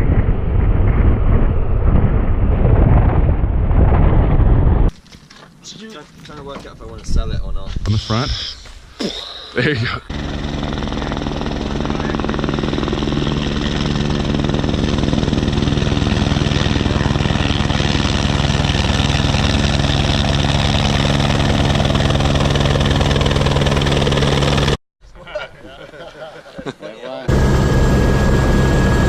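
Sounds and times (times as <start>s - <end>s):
helicopter turbine and rotor: 9.6s - 24.8s, 27.3s - 29.0s.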